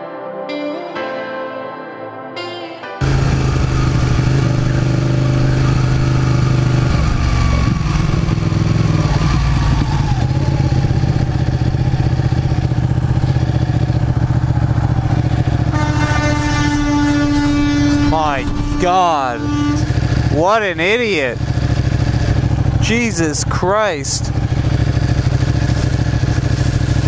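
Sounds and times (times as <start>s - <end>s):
motorcycle engine running: 3.0s - 27.0s
road and wind noise: 3.0s - 27.0s
vehicle horn blast: 15.3s - 21.5s.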